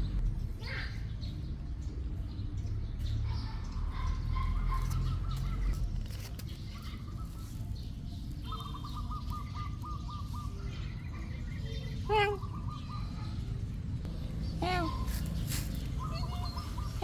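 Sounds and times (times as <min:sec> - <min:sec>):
low rumble: 0:00.0 - 0:00.6.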